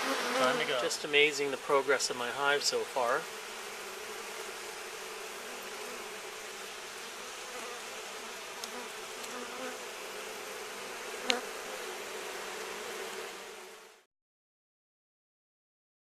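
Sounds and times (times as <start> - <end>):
honeybees buzzing: 0.0 - 14.1.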